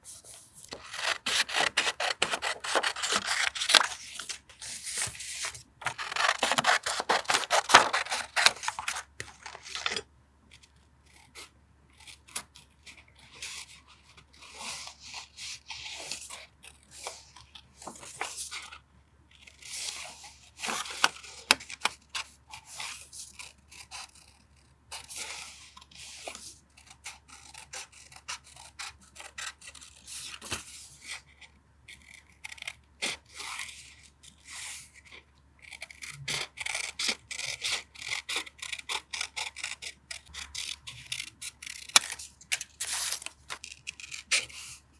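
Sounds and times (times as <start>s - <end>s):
paper rustling and tearing: 0.1s - 10.0s, 40.3s - 44.8s.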